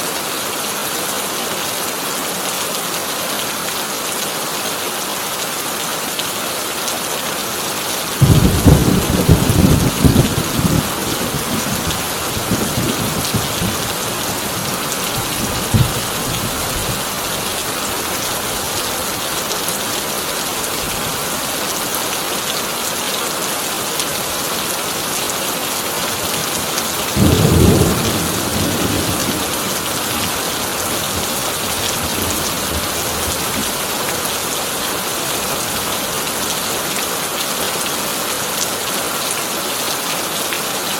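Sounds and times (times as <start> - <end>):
rain on a tin roof: 0.0 - 40.9
thunder claps: 8.2 - 14.0, 14.6 - 17.0, 27.2 - 33.3.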